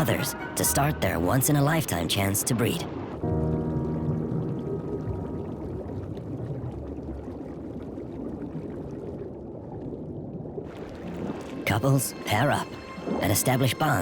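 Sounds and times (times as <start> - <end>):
held music chord: 0.0 - 2.0, 3.2 - 5.8, 11.6 - 14.0
underwater water wash: 0.0 - 14.0.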